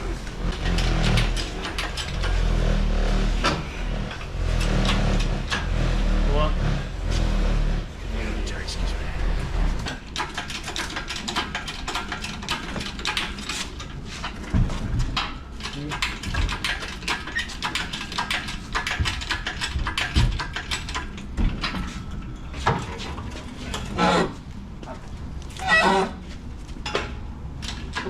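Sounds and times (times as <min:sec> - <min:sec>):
metallic clatter of hand tools: 0:00.4 - 0:02.6, 0:09.8 - 0:24.2
indistinct voices: 0:06.1 - 0:10.0.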